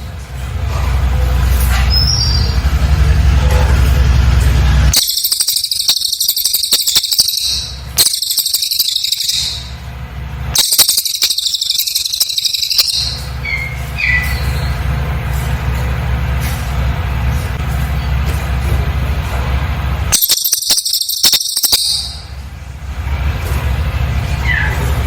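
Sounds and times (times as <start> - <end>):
steady low hum: 2.5 - 25.0
songbird rattling trills: 5.0 - 9.9, 10.6 - 14.9, 20.1 - 22.4.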